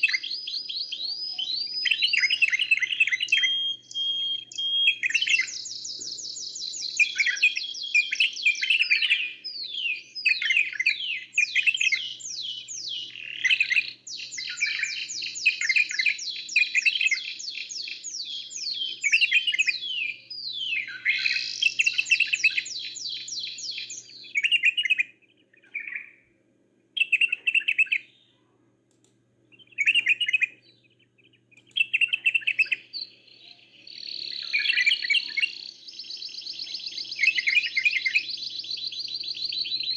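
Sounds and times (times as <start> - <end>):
songbirds trilling: 0.0 - 26.4, 27.0 - 39.9.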